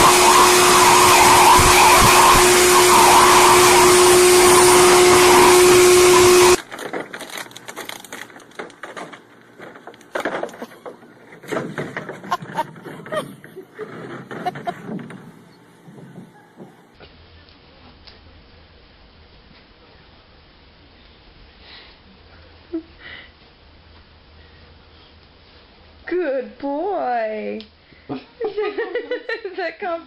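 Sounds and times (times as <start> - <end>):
hair dryer blowing: 0.0 - 6.6.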